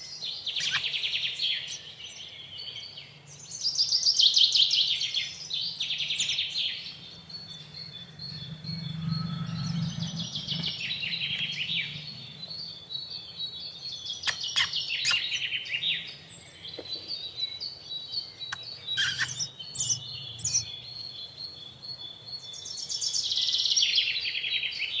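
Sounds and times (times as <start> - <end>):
baby sparrow chirping: 0.4 - 1.9, 10.2 - 15.8, 17.0 - 21.5
sharp clicks: 14.2 - 15.2.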